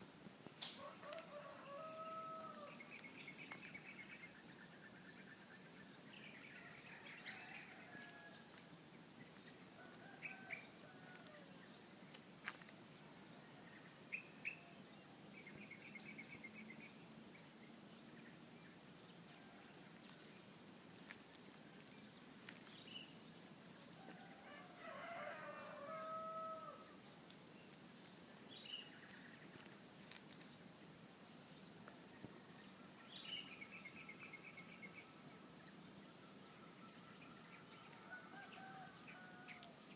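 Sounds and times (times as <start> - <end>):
rooster crowing: 0.8 - 2.8, 24.0 - 27.0, 37.8 - 39.7.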